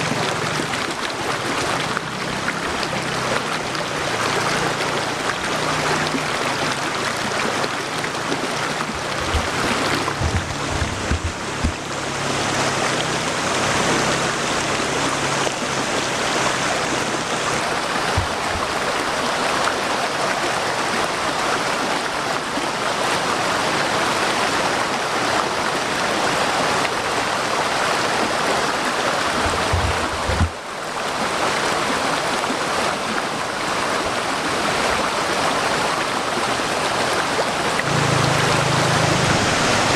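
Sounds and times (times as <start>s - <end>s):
waterfall splashing over rocks: 0.0s - 39.9s
low thuds: 9.0s - 12.0s.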